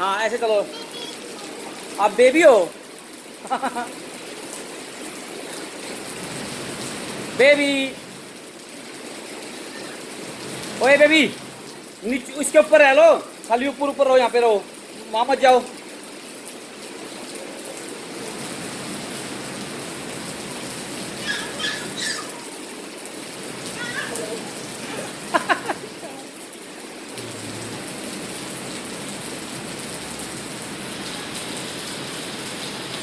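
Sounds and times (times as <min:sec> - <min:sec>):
steady rain falling: 0:00.0 - 0:33.0
high-pitched cries: 0:21.1 - 0:22.7, 0:23.6 - 0:24.8.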